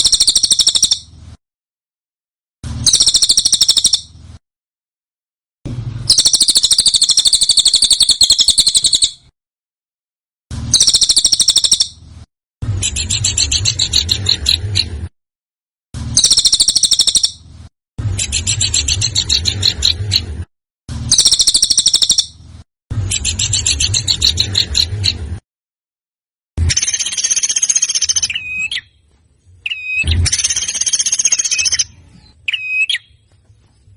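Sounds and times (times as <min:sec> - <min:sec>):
songbird harsh trills: 0:06.1 - 0:09.2, 0:16.2 - 0:17.4, 0:29.6 - 0:33.2.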